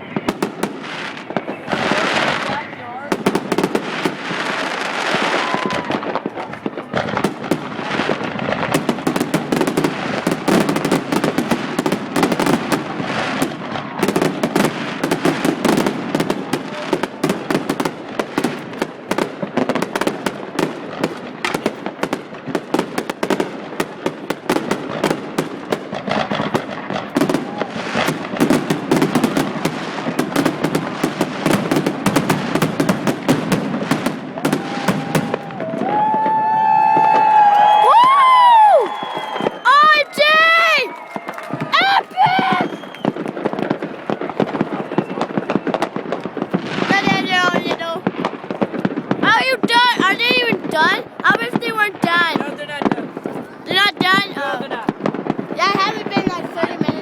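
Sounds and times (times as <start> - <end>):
fireworks bangs and crackles: 0.0 - 57.0
firework whistle: 3.6 - 17.9, 34.0 - 46.9.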